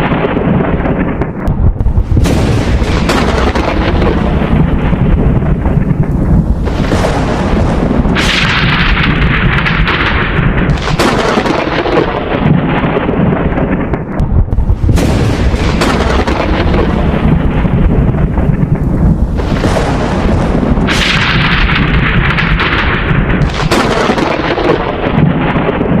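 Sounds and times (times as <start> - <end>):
rolling thunder rumble: 0.0 - 26.0
thunder cracks: 0.0 - 26.0
continuous low rumble: 1.4 - 11.0, 14.2 - 23.8.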